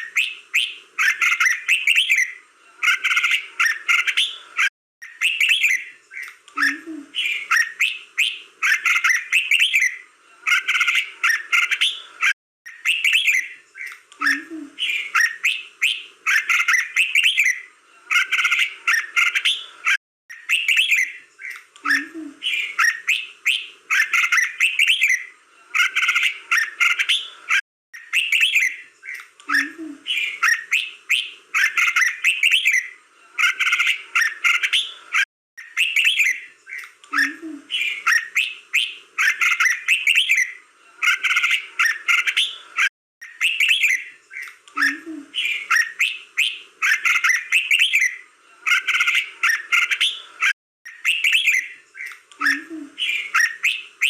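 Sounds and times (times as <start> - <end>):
bulbul singing: 5.0 - 12.0, 12.7 - 19.6, 50.9 - 54.0.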